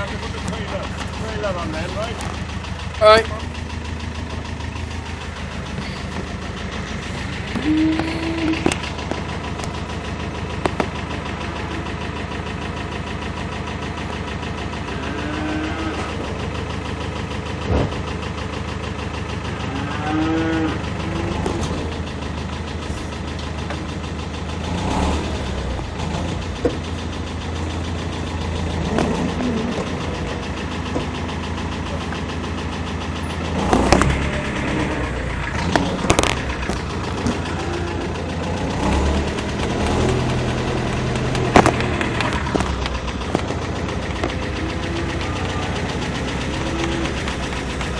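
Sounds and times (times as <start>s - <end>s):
tractor engine idling: 0.0s - 47.9s
cattle mooing: 7.0s - 8.8s, 14.8s - 16.2s, 19.6s - 21.6s, 28.8s - 30.2s, 44.2s - 47.6s.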